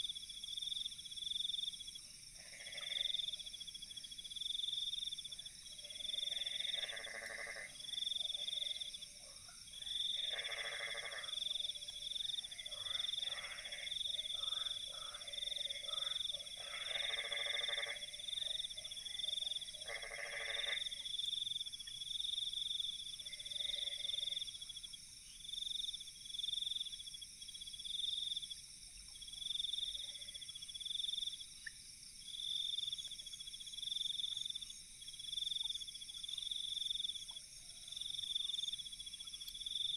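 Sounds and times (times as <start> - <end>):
pulsing insect chirp: 9.8 - 39.9.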